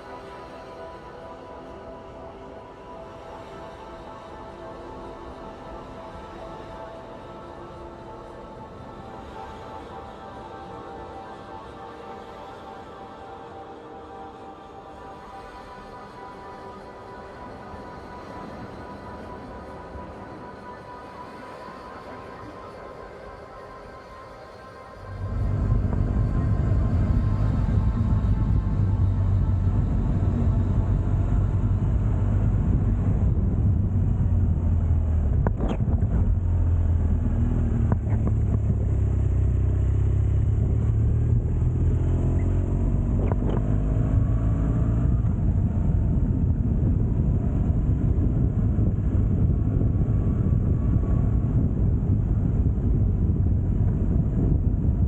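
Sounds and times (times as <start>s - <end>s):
wind and road noise: 25.1s - 55.0s.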